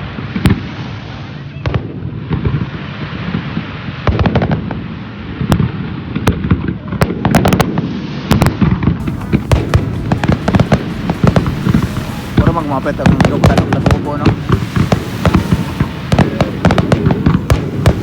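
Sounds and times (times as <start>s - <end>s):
firework shells bursting: 9.0s - 18.0s
steady rumble: 9.0s - 18.0s.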